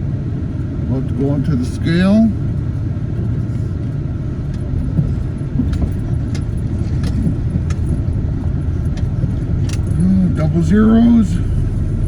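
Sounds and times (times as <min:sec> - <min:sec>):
vehicle engine and road rumble: 0:00.0 - 0:12.0
light rattling clicks: 0:02.4 - 0:10.7.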